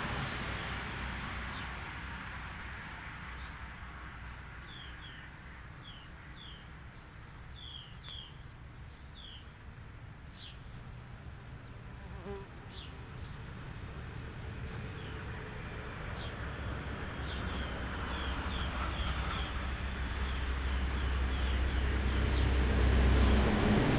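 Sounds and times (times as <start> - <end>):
steady background noise: 0.0 - 23.9
small bird chirping: 7.5 - 9.5.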